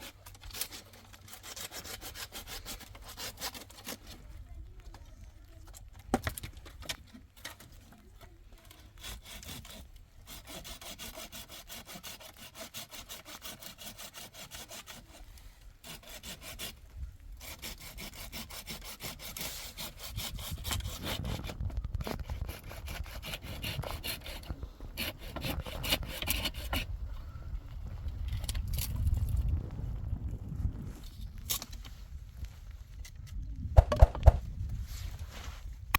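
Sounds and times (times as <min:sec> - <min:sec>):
hand saw strokes: 0:00.0 - 0:04.2, 0:08.6 - 0:26.9.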